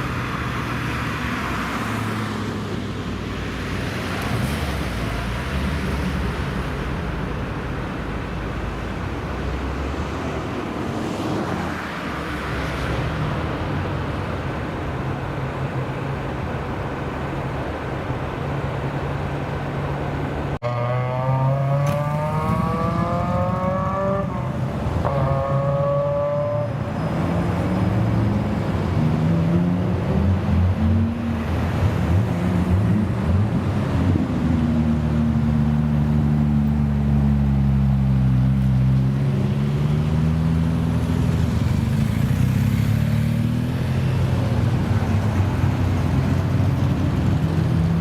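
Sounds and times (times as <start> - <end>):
car engines humming: 0.0 - 48.0.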